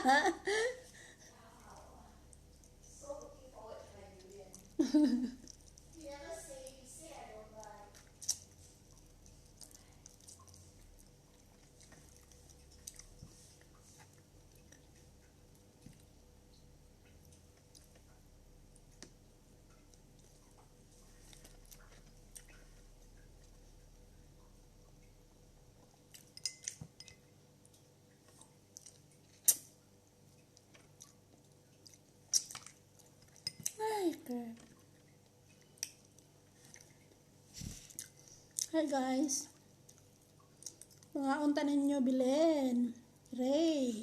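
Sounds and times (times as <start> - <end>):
faint chewing: 1.2 - 41.2
wet mouth smacks: 28.8 - 29.7, 31.8 - 32.8.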